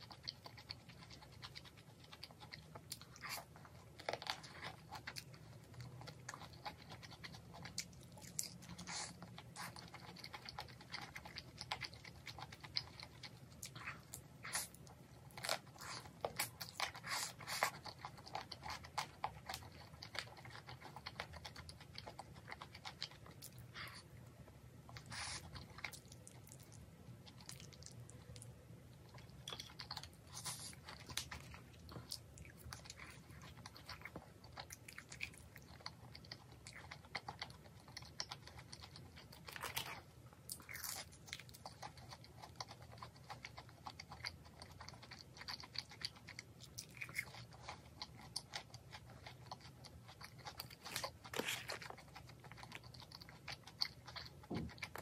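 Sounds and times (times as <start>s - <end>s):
chewing and crunching food: 0.0s - 55.0s.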